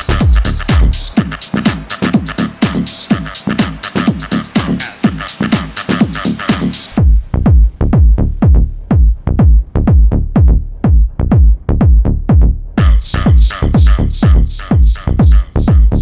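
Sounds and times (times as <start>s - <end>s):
hi-hats: 0.0s - 7.8s, 12.8s - 16.0s
deep pounding kick drum: 0.0s - 16.0s
techno music: 0.0s - 16.0s.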